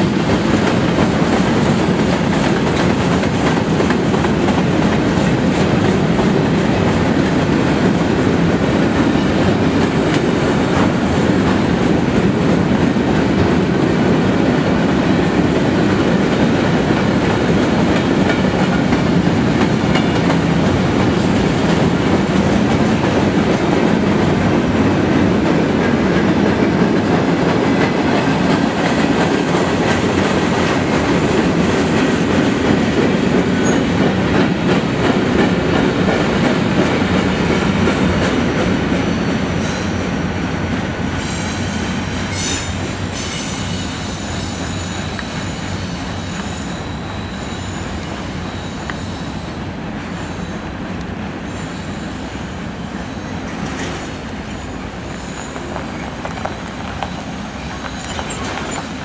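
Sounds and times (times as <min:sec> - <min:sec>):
steel wheels clattering on rails: 0:00.0 - 0:40.0, 0:53.3 - 0:59.0
freight train rumbling past: 0:00.0 - 0:59.0.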